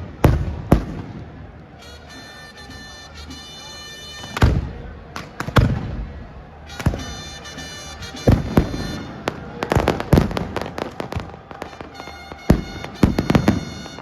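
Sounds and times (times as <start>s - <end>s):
fireworks bangs and crackles: 0.0s - 1.7s, 4.2s - 14.0s.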